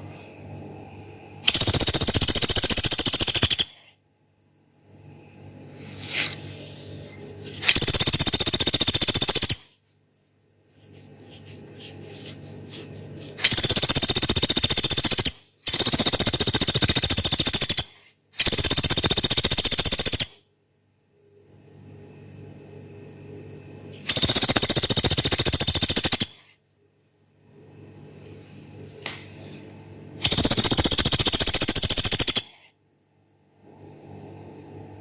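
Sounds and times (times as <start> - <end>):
woodpecker rattling call: 1.5 - 3.8, 7.6 - 9.7, 13.4 - 20.4, 24.1 - 26.4, 30.2 - 32.6.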